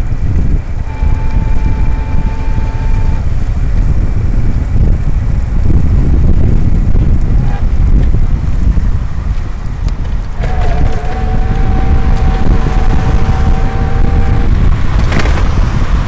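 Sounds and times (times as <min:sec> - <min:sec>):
wind buffeting microphone: 0:00.0 - 0:16.0
steady whistling tone: 0:00.8 - 0:03.3, 0:10.4 - 0:14.6.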